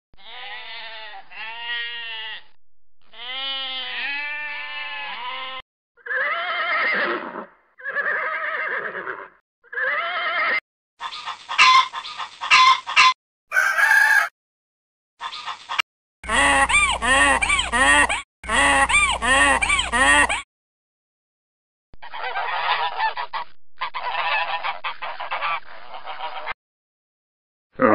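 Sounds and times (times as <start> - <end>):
sheep bleating: 0.2 - 2.5, 3.1 - 6.7.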